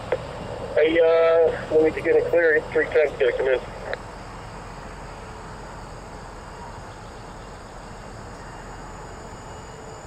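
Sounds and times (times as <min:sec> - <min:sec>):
radio receiver hiss: 0:00.0 - 0:04.7
faint steady hum: 0:00.0 - 0:10.0.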